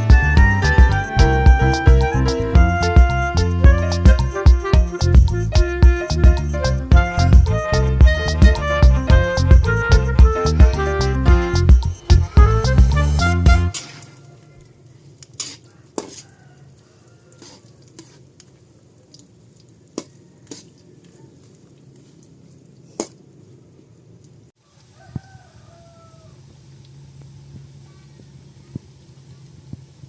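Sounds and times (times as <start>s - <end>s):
background music: 0.0s - 14.4s
faint frying sizzle: 14.3s - 22.8s, 24.2s - 30.0s
faint animal call: 24.6s - 26.4s, 27.8s - 29.5s.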